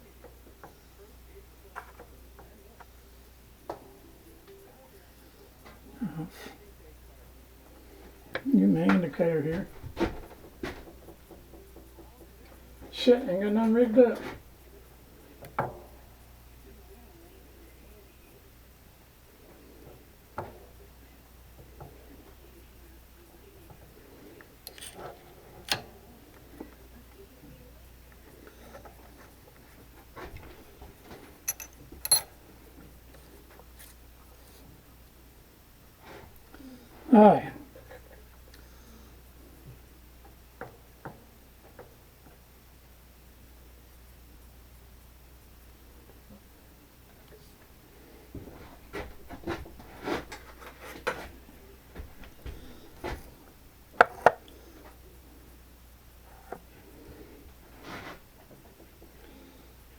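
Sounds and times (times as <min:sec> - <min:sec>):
tools knocking and rubbing: 0:09.6 - 0:12.7, 0:24.6 - 0:25.8, 0:30.2 - 0:32.4, 0:48.9 - 0:51.4
soft shuffling of tools: 0:13.6 - 0:14.6, 0:23.6 - 0:27.2, 0:28.2 - 0:34.8, 0:47.2 - 0:53.6, 0:56.3 - 0:59.5
sharp metallic clink: 0:31.5 - 0:32.4.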